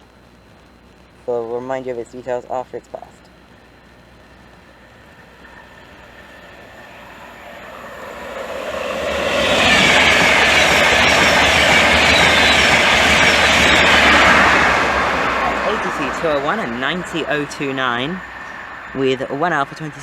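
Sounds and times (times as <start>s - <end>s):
wheels rushing on rail: 4.2s - 20.0s
train passing at speed: 4.4s - 20.0s.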